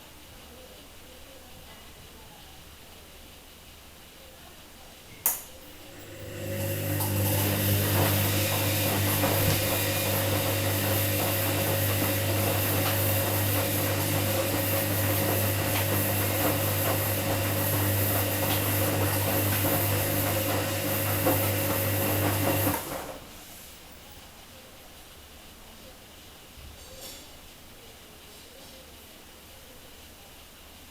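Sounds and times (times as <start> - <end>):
washing machine running: 5.6 - 23.6.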